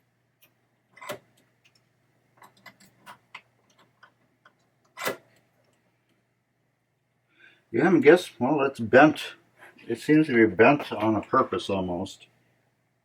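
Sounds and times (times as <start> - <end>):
metal mechanism clicks and clacks: 0.4 - 1.8, 2.4 - 5.4.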